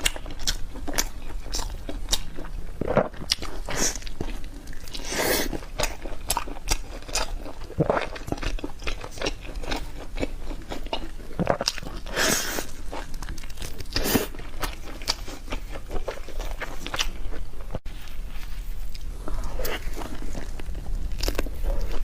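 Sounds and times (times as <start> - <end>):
person chewing crunchy food: 0.0 - 22.0.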